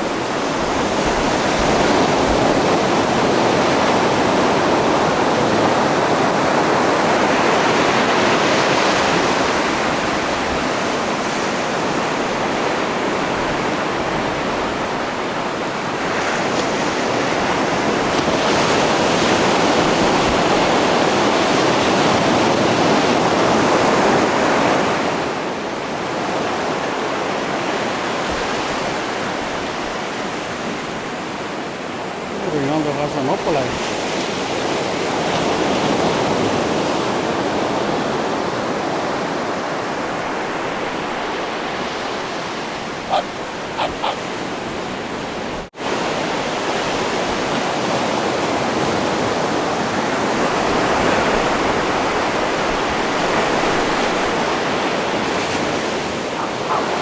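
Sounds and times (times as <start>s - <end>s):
ocean surf breaking: 26.1s - 57.0s.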